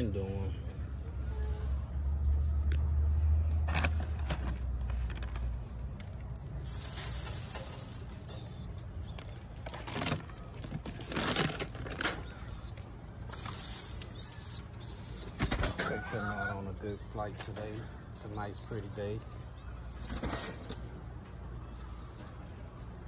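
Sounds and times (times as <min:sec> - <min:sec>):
pigeon wings flapping: 0:13.3 - 0:16.1.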